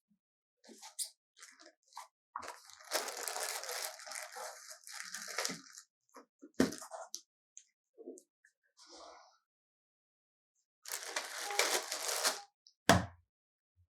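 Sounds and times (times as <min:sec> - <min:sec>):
packaging rustling and crinkling: 0:02.4 - 0:05.8, 0:10.9 - 0:12.4.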